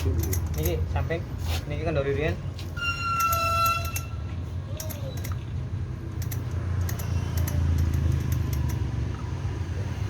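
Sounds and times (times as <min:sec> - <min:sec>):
metallic clicks and rattles: 0:00.0 - 0:01.0, 0:04.8 - 0:09.0.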